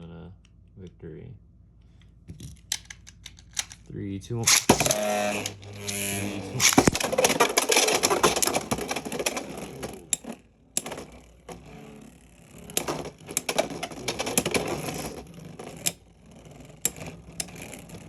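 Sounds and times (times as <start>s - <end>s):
spinning tops clacking: 4.4s - 11.8s, 12.6s - 18.0s.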